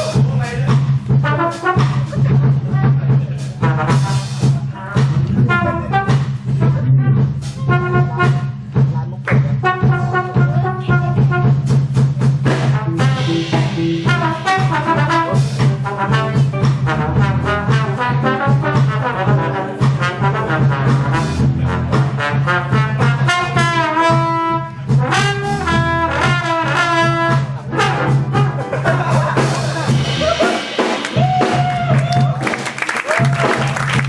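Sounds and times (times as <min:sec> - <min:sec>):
jazz big band playing: 0:00.0 - 0:34.0
trumpets and trombones: 0:01.1 - 0:02.4, 0:03.6 - 0:06.8, 0:07.4 - 0:08.7, 0:09.6 - 0:11.8, 0:12.4 - 0:31.5.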